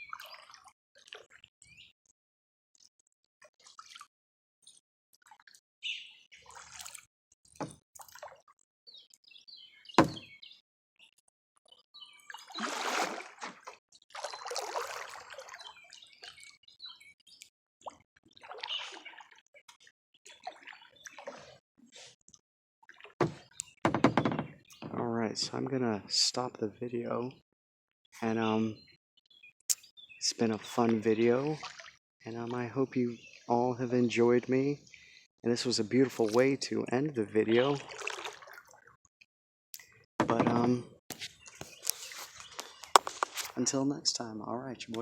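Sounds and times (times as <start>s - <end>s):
water dripping and splashing: 3.5s - 4.1s, 6.4s - 8.6s, 12.3s - 16.6s, 17.8s - 21.6s, 31.6s - 32.0s, 37.7s - 38.8s
birds chirping: 8.9s - 10.6s, 40.2s - 45.0s
sharp knocks: 10.0s - 10.3s.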